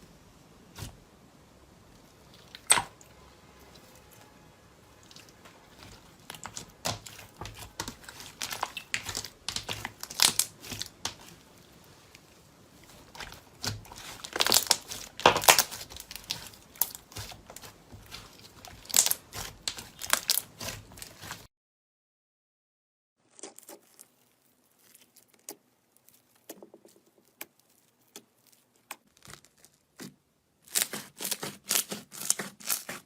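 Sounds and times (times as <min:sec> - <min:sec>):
crunchy material crackling: 0:04.9 - 0:21.5, 0:23.2 - 0:33.0.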